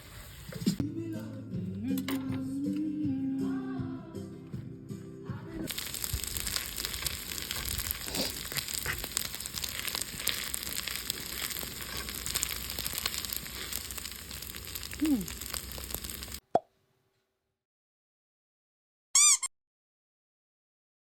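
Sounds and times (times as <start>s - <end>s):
background music: 0.8s - 5.7s
crackling hiss with clicks: 5.7s - 16.4s.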